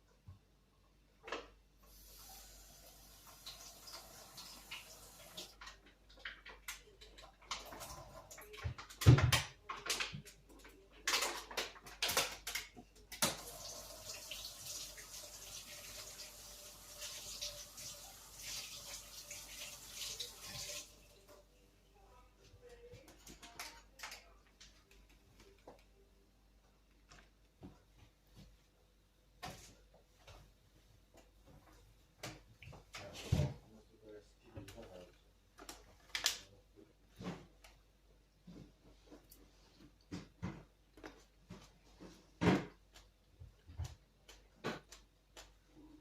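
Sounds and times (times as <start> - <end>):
water running from a tap: 1.9 - 5.6, 13.3 - 21.2.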